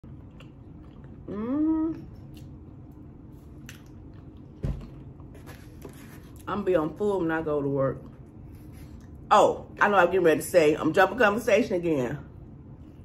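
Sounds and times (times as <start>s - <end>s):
person chewing food: 0.0s - 6.4s
person humming: 1.3s - 2.0s.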